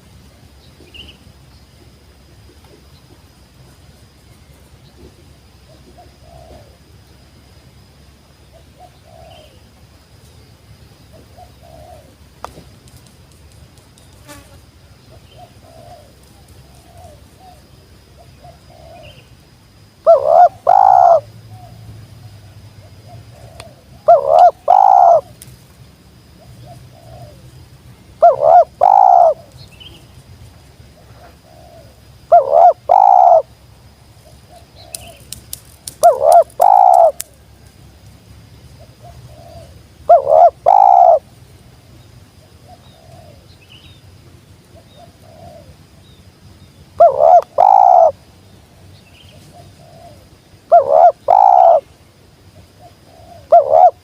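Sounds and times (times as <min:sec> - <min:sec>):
dove cooing: 0:05.7 - 0:06.9, 0:08.6 - 0:09.7, 0:11.1 - 0:12.2, 0:15.2 - 0:19.3, 0:20.0 - 0:21.8, 0:22.8 - 0:25.3, 0:26.4 - 0:27.5, 0:28.2 - 0:29.6, 0:31.0 - 0:33.5, 0:36.0 - 0:37.4, 0:38.8 - 0:41.3, 0:42.5 - 0:43.5, 0:44.8 - 0:45.8, 0:47.0 - 0:48.2, 0:49.3 - 0:51.9, 0:52.7 - 0:54.0
patter of clicks: 0:12.4 - 0:14.3, 0:34.9 - 0:38.2.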